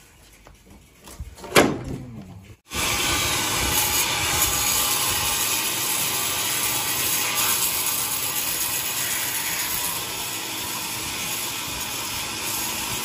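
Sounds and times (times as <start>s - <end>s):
saw cutting wood: 2.7s - 13.0s.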